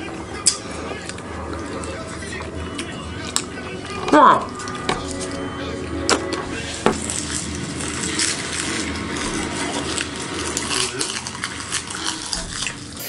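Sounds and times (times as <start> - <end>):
seaweed being chewed crunchily: 7.1 - 12.9.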